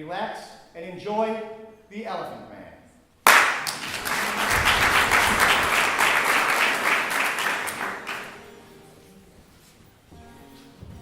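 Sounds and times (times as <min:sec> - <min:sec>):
audience applauding: 0:03.3 - 0:08.5.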